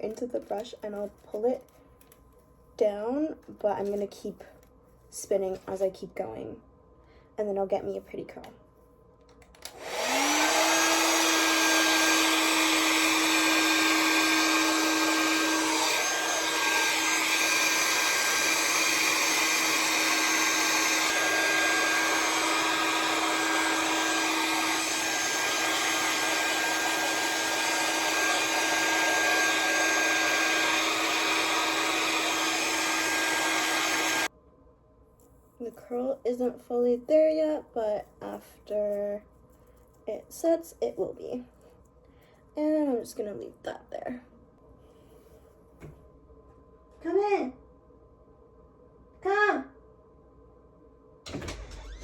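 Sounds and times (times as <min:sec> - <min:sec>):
hair dryer running: 0:09.6 - 0:34.3, 0:51.3 - 0:52.0.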